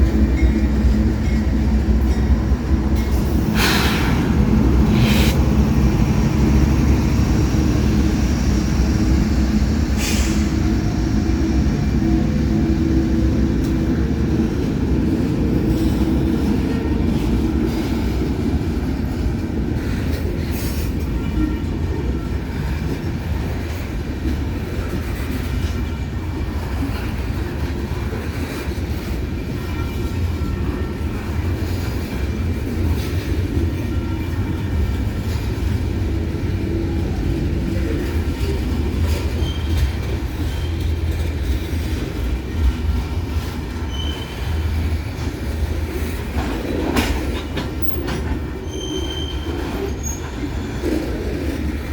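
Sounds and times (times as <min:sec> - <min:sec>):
train wheels rumbling on rail: 0:00.0 - 0:51.9
high wheel squeals: 0:39.1 - 0:41.0, 0:43.8 - 0:44.7, 0:47.8 - 0:50.6.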